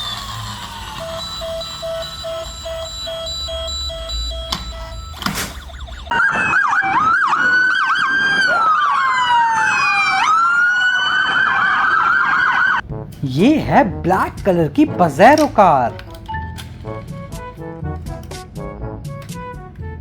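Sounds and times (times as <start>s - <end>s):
toy siren warbling: 0.0s - 12.8s
toy switch click: 15.3s - 17.4s.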